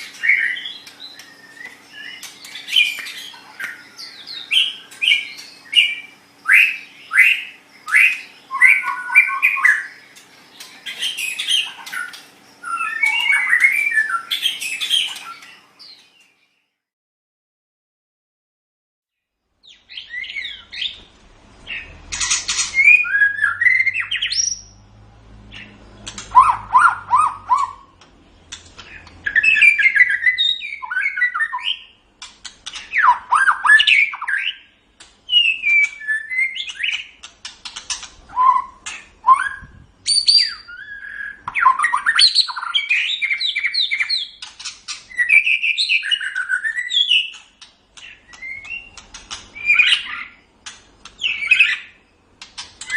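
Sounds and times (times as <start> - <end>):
bird singing whistles and trills: 0.0 - 16.4, 19.6 - 24.8, 25.5 - 28.0, 28.8 - 32.0, 32.7 - 34.7, 35.3 - 37.2, 37.8 - 47.4, 48.0 - 50.4, 51.2 - 52.0.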